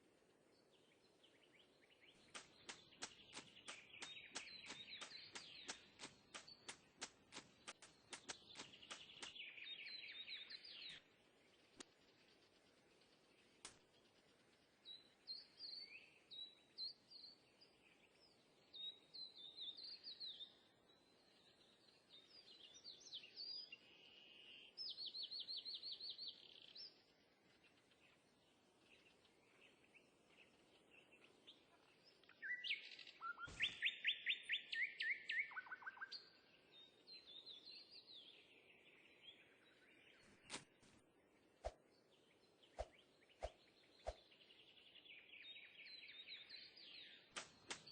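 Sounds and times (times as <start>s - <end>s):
birds chirping and singing: 0.6s - 20.6s, 28.8s - 47.9s
faint clicks: 2.2s - 9.5s.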